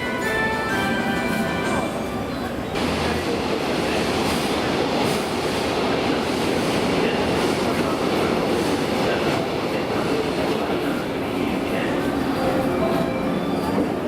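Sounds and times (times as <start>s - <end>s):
train wheels rolling on track: 1.8s - 14.0s.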